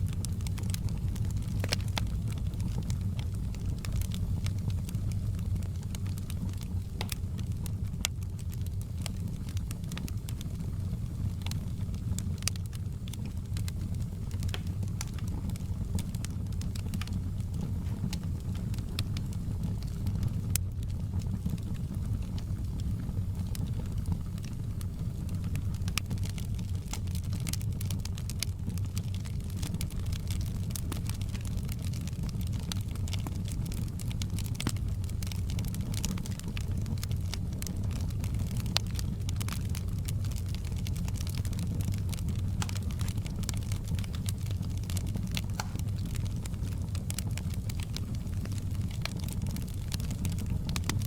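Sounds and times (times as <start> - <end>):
wood fire crackling: 0.0 - 51.0
sharp fire pops: 5.9 - 10.4, 11.4 - 20.6, 29.0 - 51.0.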